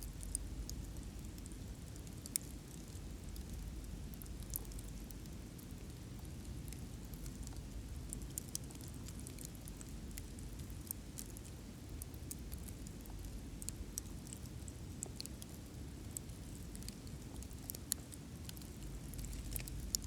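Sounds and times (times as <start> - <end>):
low rumble of burning: 0.0 - 20.0.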